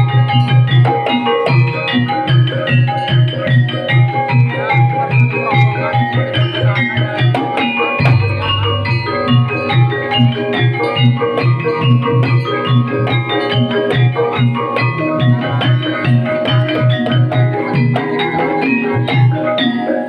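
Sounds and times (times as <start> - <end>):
keyboard and percussion music: 0.0 - 20.0
deep low note: 8.0 - 9.8.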